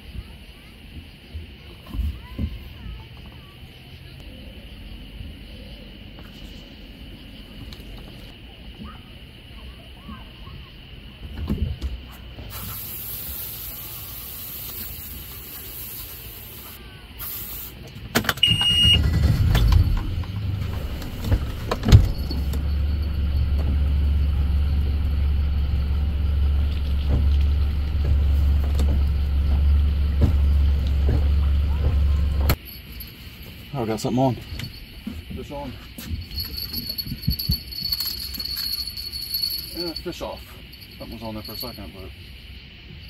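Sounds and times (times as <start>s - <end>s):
short high beep: 18.4s - 19.1s
low motor hum: 18.8s - 32.6s.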